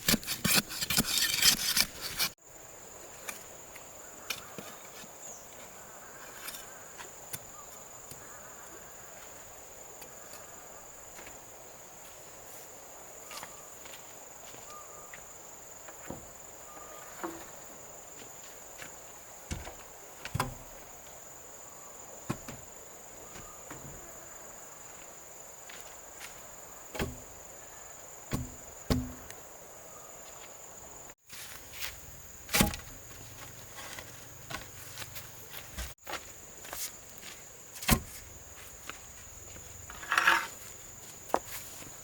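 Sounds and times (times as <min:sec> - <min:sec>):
crickets chirping: 0:00.4 - 0:42.0
knocks and thuds of work: 0:22.3 - 0:22.7, 0:26.9 - 0:27.3, 0:28.3 - 0:29.3, 0:32.5 - 0:32.9.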